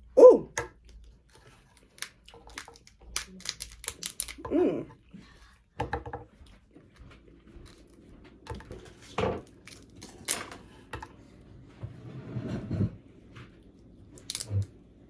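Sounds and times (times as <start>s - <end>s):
crab shell cracking: 1.6s - 4.6s, 14.2s - 14.7s.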